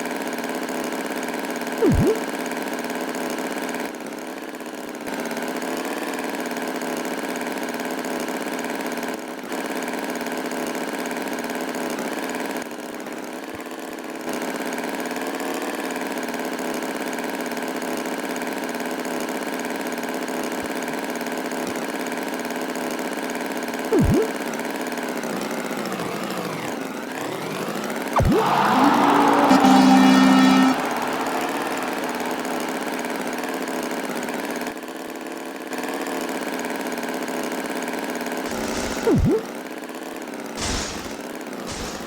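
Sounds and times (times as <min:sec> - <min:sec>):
loud sweeping tone: 0:28.2 - 0:33.5, 0:38.5 - 0:39.5, 0:40.6 - 0:42.0.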